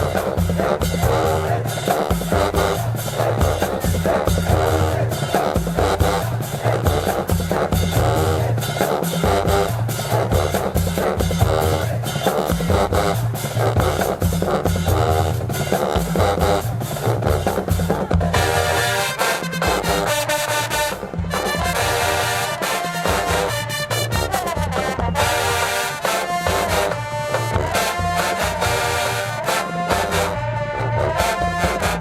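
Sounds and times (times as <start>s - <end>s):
marching band playing: 0.0s - 32.0s
snare and bass drums: 0.0s - 32.0s.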